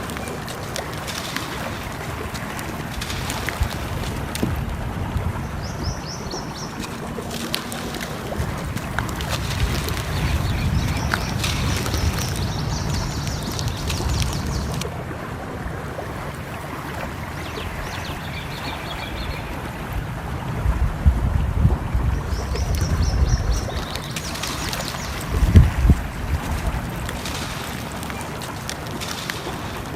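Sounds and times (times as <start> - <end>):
water flowing: 0.0 - 29.9
small birds chirping: 5.4 - 14.9, 16.2 - 19.8, 22.2 - 26.2
wood fire crackling: 6.8 - 14.9, 23.6 - 29.9.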